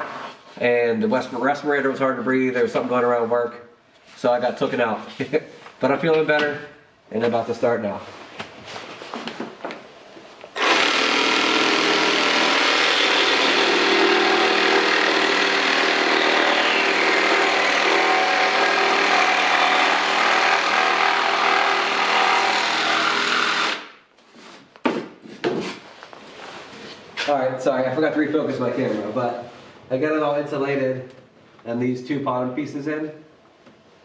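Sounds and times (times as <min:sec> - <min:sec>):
electric power tool running: 0:10.6 - 0:23.8.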